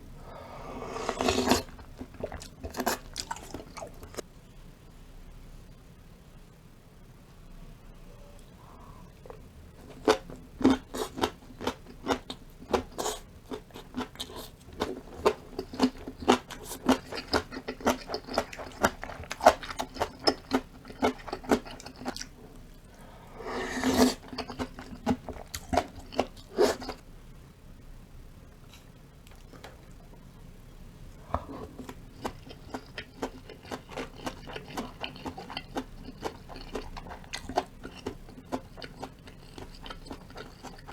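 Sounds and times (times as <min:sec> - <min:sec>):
person chewing crunchy food: 0:00.8 - 0:04.2, 0:09.8 - 0:22.4, 0:23.5 - 0:27.0, 0:31.3 - 0:40.9.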